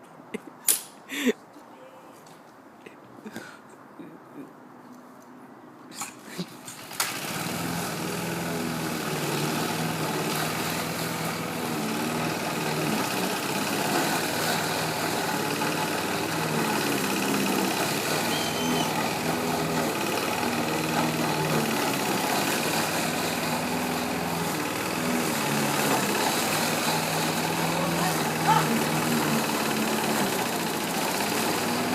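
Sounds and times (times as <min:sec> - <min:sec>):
lawn mower engine running: 0:06.6 - 0:31.9.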